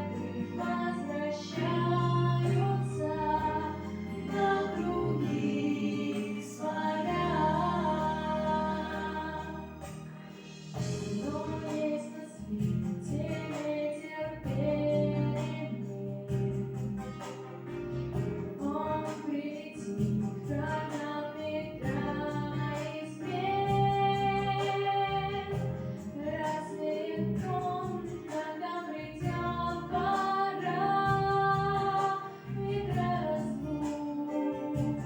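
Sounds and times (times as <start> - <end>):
woman singing: 0.0 - 10.0, 10.8 - 16.6, 18.5 - 35.0
plucked strings accompaniment: 0.0 - 35.0.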